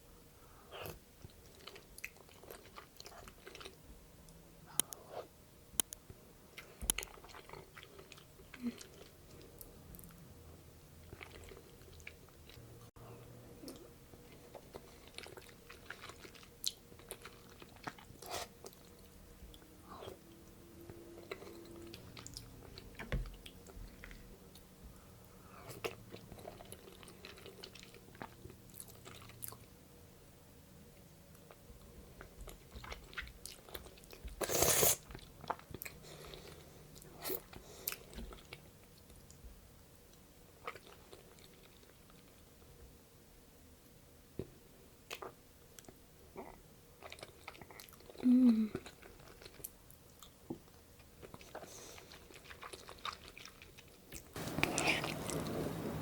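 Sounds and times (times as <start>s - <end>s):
person chewing wet mouth sounds: 45.1s - 55.6s.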